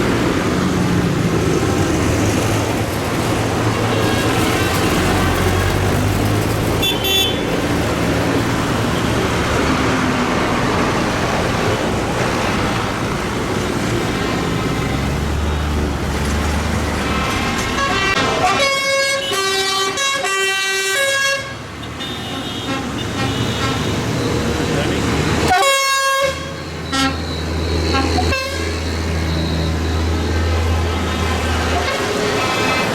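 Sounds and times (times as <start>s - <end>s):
horn toots: 17.7s - 24.1s, 25.5s - 29.6s
tractor engines running: 21.8s - 25.6s.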